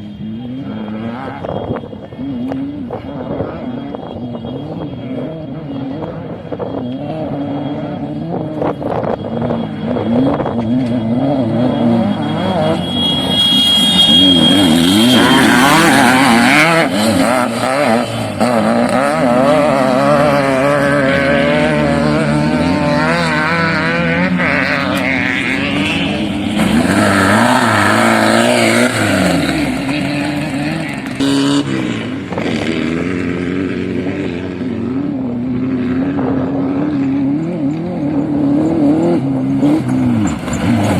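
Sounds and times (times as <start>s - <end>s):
off-road vehicle engine revving: 0.0s - 40.9s.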